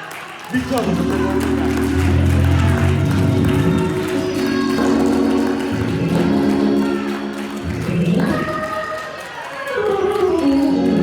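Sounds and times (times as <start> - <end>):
organ playing held chords: 0.6 - 8.8.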